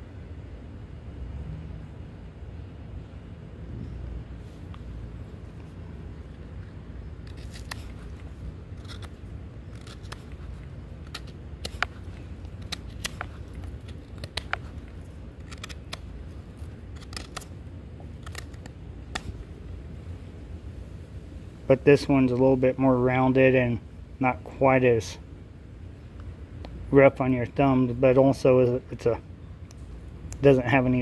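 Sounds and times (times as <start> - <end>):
low background rumble: 0.0 - 31.0
knife scraping wood: 6.4 - 19.4.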